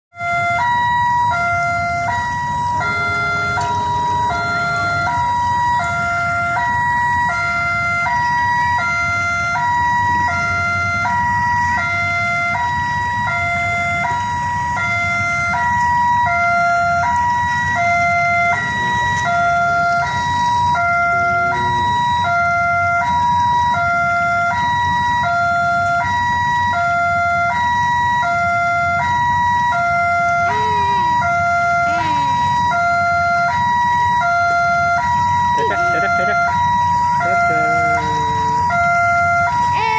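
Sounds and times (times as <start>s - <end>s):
low rumble: 2.6s - 6.6s.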